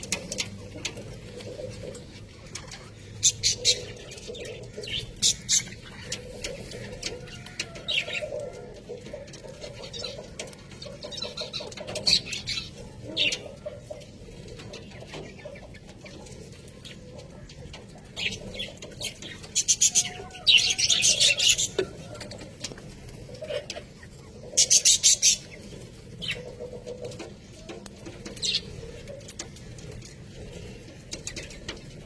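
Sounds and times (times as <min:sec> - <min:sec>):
budgerigars warbling: 0:02.6 - 0:14.0, 0:17.3 - 0:22.4, 0:23.2 - 0:26.8.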